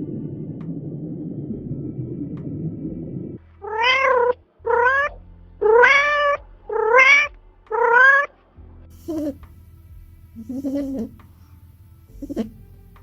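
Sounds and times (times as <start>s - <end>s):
cat meowing: 3.6s - 8.3s, 9.0s - 9.4s, 10.4s - 11.2s, 12.1s - 12.6s.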